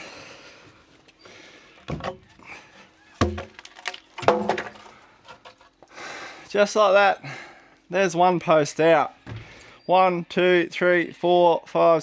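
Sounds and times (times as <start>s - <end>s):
heavy wooden thuds and knocks: 1.9s - 2.3s, 3.2s - 4.9s.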